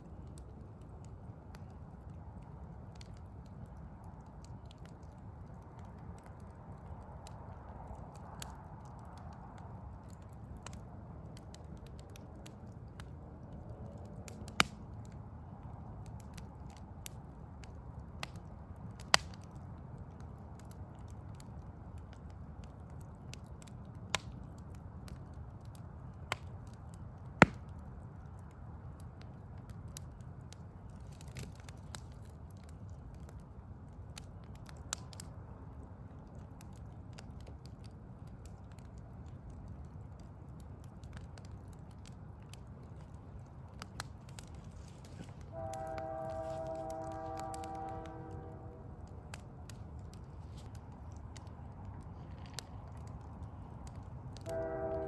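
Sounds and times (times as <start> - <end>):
wood fire crackling: 0.0 - 55.0
sharp pops of fire: 5.6 - 15.2, 16.0 - 28.0, 29.3 - 33.3, 40.6 - 55.0.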